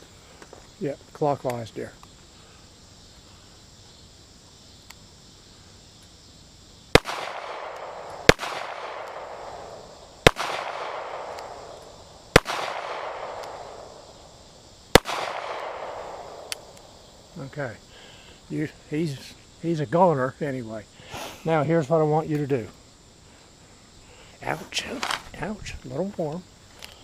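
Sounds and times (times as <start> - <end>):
handgun shots with echo: 7.0 - 11.8, 12.4 - 13.8, 15.0 - 16.8.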